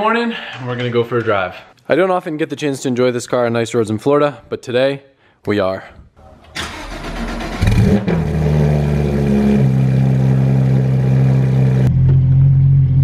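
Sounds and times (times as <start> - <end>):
car engine revving and idling: 7.0 - 13.0.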